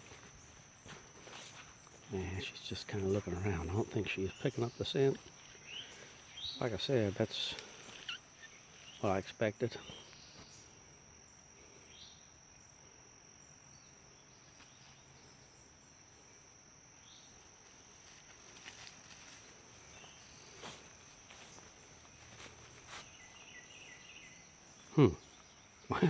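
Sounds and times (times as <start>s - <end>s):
insect chorus: 0.0s - 26.0s
soft rustles or steps: 17.6s - 23.9s.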